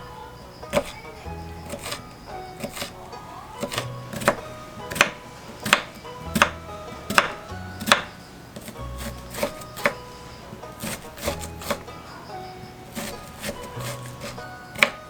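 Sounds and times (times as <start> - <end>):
soft background music: 0.0 - 15.0
knife chopping on cutting board: 0.8 - 1.0, 1.6 - 2.0, 2.6 - 3.0, 3.6 - 10.0, 10.7 - 11.9, 12.9 - 15.0.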